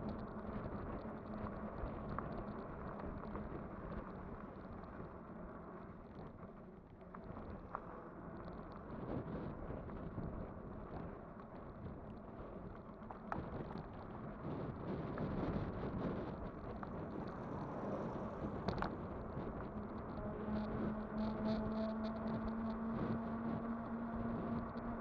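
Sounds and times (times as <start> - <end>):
wind buffeting microphone: 8.5 - 25.0.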